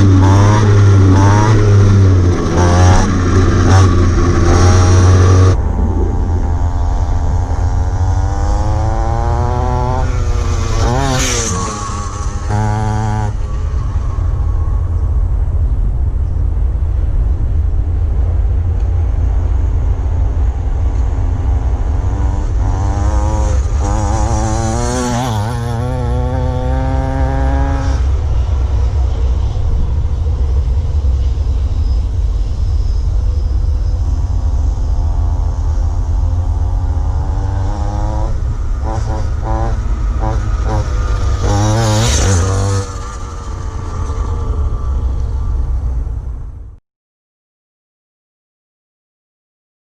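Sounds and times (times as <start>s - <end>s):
pit bike engine revving: 0.0s - 14.1s, 20.6s - 29.1s, 33.6s - 45.6s.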